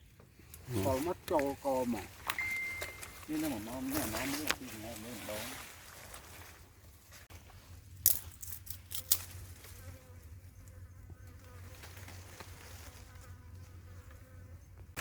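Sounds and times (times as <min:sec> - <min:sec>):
flying insect buzzing: 0:09.0 - 0:14.8.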